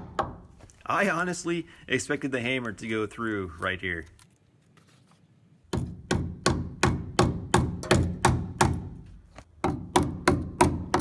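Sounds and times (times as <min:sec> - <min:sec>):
hammer tapping steel frame: 0:05.7 - 0:09.0, 0:09.6 - 0:11.0.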